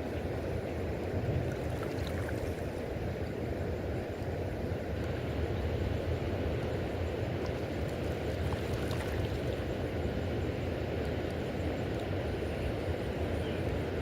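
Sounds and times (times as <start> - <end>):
river current flowing: 0.0 - 14.0.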